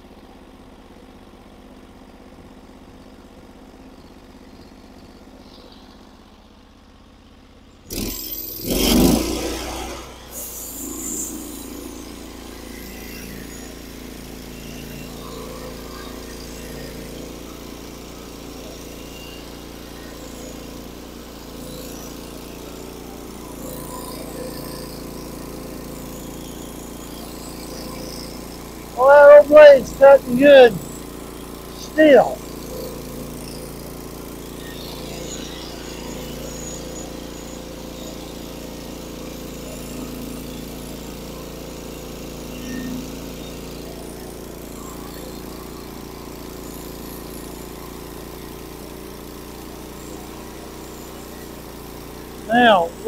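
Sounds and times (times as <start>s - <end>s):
sawmill engine running: 7.9s - 53.0s.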